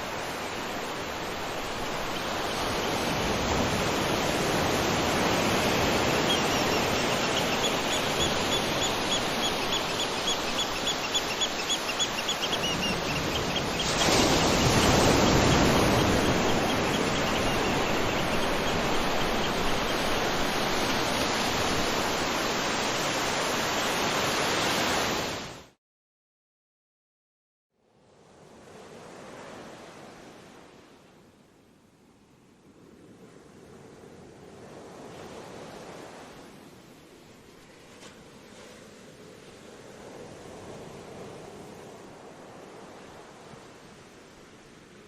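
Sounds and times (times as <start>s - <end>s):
ocean surf washing: 0.0s - 25.6s.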